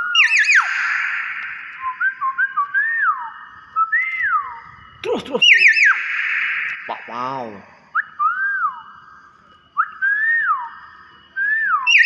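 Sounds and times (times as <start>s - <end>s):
bird whistling sliding notes: 0.0s - 4.7s, 11.4s - 12.0s
steady hiss: 4.5s - 8.0s.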